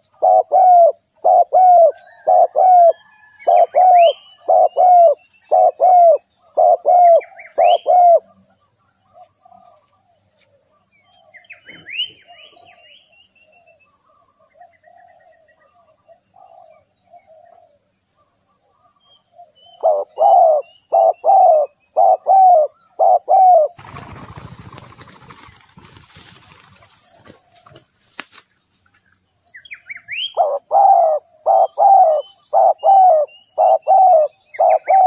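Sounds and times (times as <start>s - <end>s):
dove cooing: 0.0s - 8.3s, 19.8s - 25.2s, 30.2s - 35.0s
small birds chirping: 0.0s - 35.0s
rustling noise: 23.8s - 29.0s.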